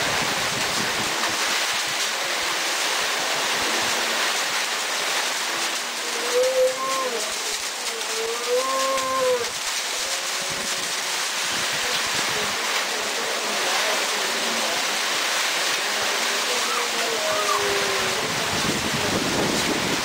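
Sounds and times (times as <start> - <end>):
hail pouring down: 0.0 - 20.0
hailstones clicking: 0.2 - 16.5
long wavering call: 5.9 - 12.5, 15.9 - 18.4.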